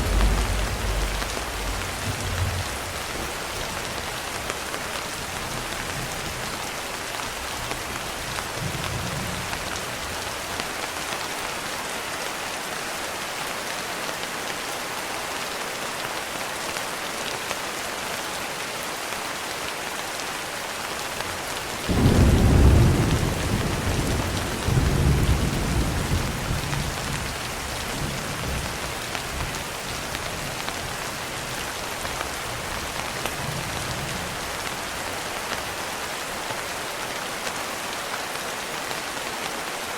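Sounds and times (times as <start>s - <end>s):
thunder rumble: 0.0s - 4.0s
steady rain: 0.0s - 39.9s.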